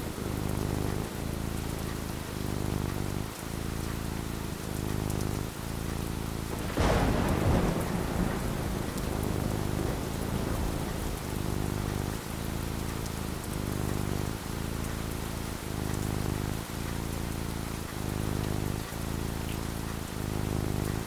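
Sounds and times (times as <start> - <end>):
steady rain falling: 0.0 - 21.0
thunderclap rumbling: 6.5 - 14.6.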